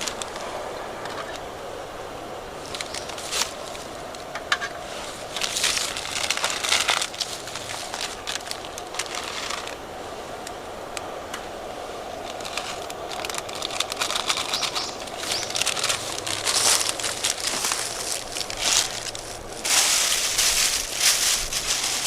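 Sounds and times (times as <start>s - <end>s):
background hiss: 0.0s - 22.0s.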